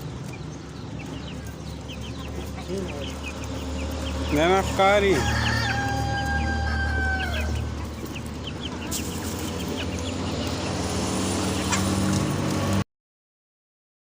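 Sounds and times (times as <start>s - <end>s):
chickens clucking and chirping: 0.0s - 12.8s
rooster crowing: 5.0s - 7.7s.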